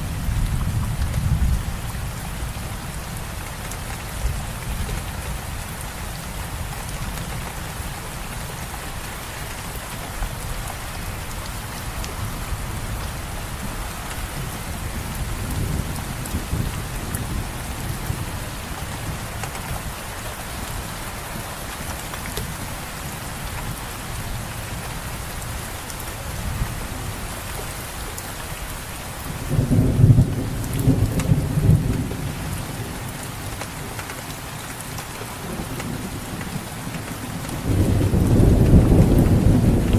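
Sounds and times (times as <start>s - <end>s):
steady rain falling: 0.0s - 39.9s
distant thunder rumbling: 35.4s - 39.9s.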